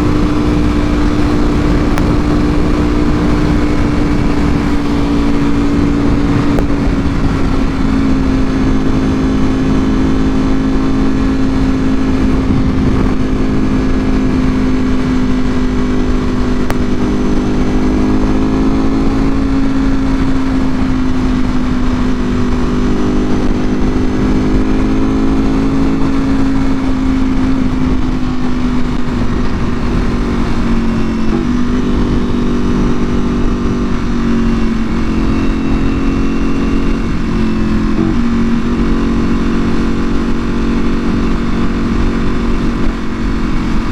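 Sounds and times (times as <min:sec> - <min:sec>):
low rumble: 0:00.0 - 0:19.1
motorcycle engine cruising: 0:00.0 - 0:43.9.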